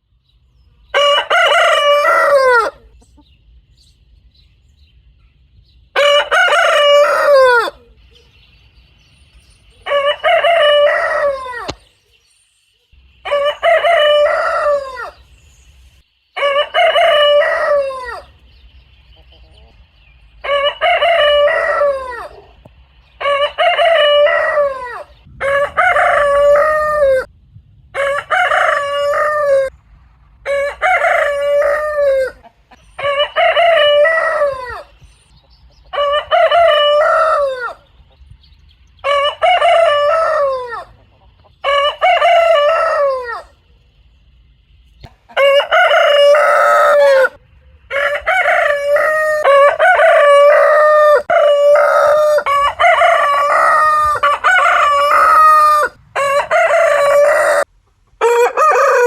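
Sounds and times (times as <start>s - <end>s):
rooster crowing: 0.9s - 3.0s, 6.0s - 8.0s, 9.8s - 11.8s, 13.2s - 15.3s, 16.4s - 18.4s, 20.4s - 22.6s, 23.2s - 27.3s, 27.9s - 29.7s, 30.4s - 35.0s, 35.9s - 37.9s, 39.0s - 41.0s, 41.6s - 43.6s, 45.3s - 59.0s.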